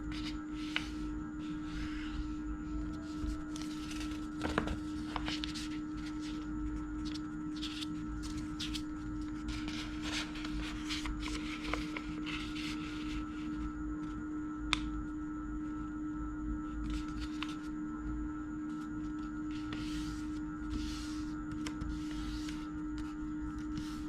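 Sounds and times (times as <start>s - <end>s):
low hum: 0.0s - 24.0s
paper rustling and crackling: 2.8s - 13.3s.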